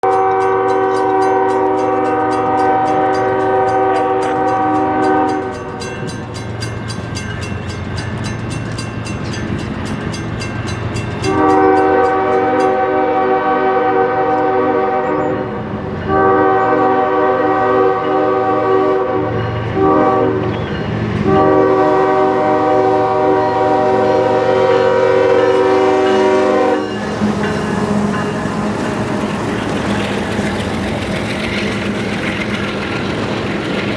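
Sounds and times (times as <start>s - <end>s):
locomotive air horn blasts: 0.0s - 5.5s, 11.3s - 15.5s, 16.1s - 20.5s, 21.2s - 29.1s
train rumble: 0.0s - 33.9s.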